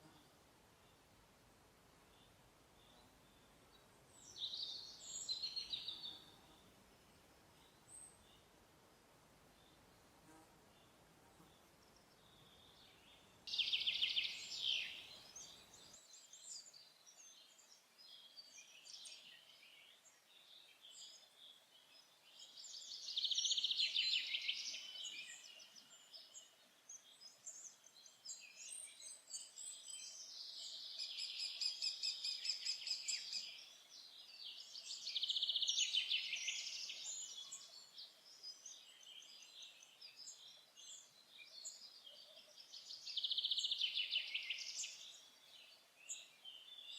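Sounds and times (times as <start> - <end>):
songbirds singing: 0.0 - 46.9.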